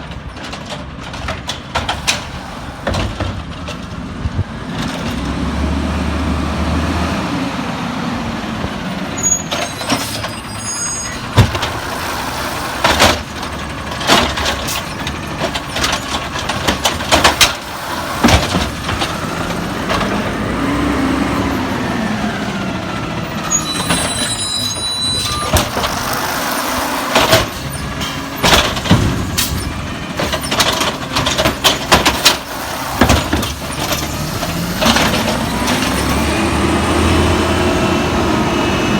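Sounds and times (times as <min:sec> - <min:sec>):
knocks and clanks: 0:00.0 - 0:04.0, 0:11.1 - 0:20.4, 0:23.8 - 0:36.3
truck engine revving: 0:01.8 - 0:38.9.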